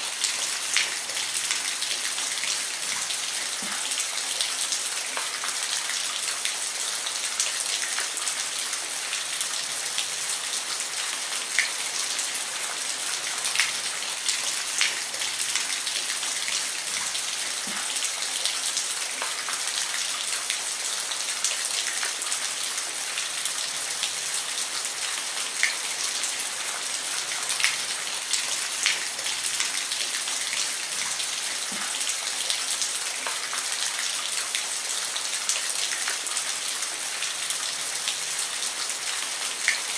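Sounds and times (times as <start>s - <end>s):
rain falling on a roof: 0.0s - 39.9s.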